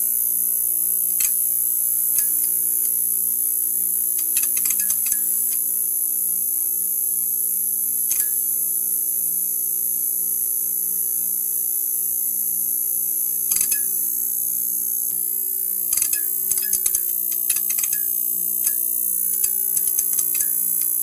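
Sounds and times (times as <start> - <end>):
neon sign buzzing: 13.5 - 21.0
electrical crackling clicks: 15.9 - 21.0.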